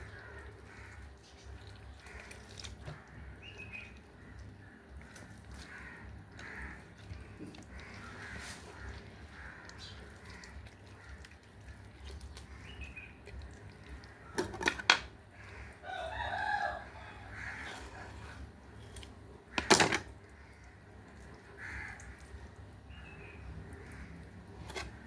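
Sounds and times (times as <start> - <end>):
rooster crowing: 15.8 - 17.6.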